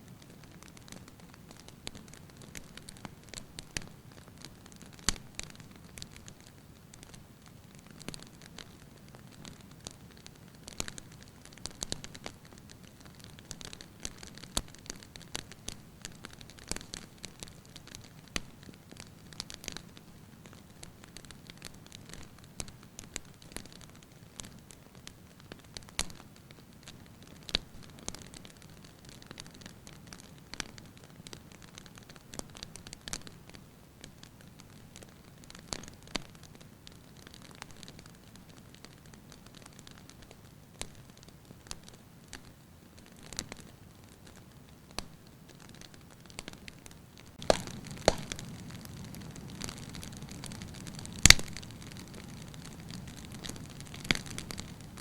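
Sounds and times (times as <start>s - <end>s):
firewood crackling and popping: 0.1s - 55.0s
low rumble of flames: 47.2s - 55.0s.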